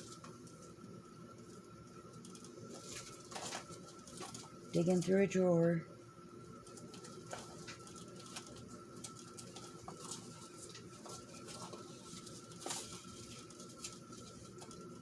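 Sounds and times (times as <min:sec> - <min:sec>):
faint steady hum: 0:00.0 - 0:15.0
items rustling in a drawer: 0:02.2 - 0:05.2, 0:06.7 - 0:15.0.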